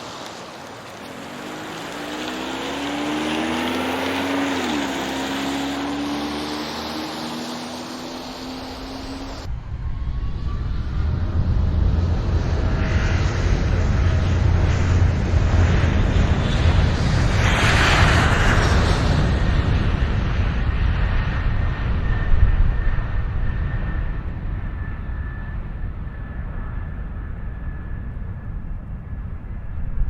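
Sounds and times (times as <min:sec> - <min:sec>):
jet engines roaring: 0:00.0 - 0:30.0
deep rumble: 0:08.7 - 0:30.0.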